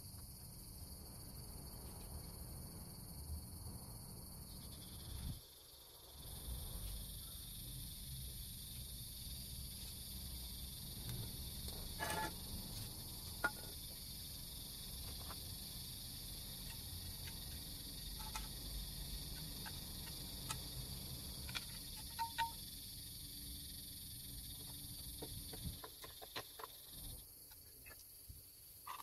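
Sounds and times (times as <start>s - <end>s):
crickets chirring: 0.0s - 29.0s.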